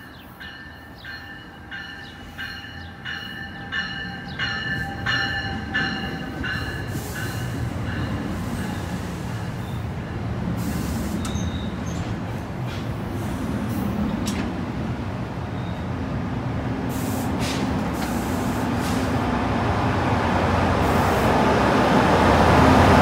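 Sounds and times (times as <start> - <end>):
crossing bell ringing: 0.0 - 9.8
train rumbling past: 0.0 - 23.0.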